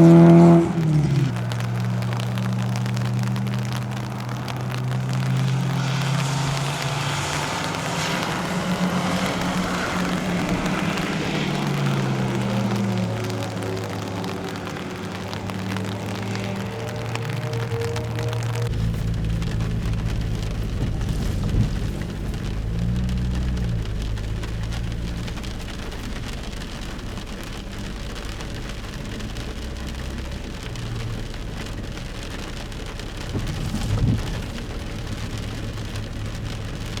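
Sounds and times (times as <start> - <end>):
low rumble: 0.0 - 37.0
steady rain falling: 0.0 - 37.0.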